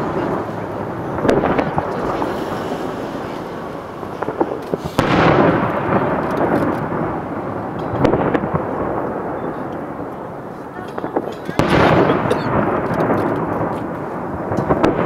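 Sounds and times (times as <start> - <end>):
firework booms with rumbling echo: 0.0 - 15.0
firework crackles: 0.0 - 15.0.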